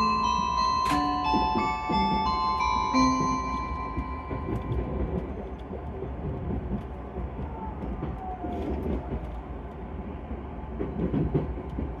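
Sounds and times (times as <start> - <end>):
wheels rumbling on rail: 0.0 - 12.0.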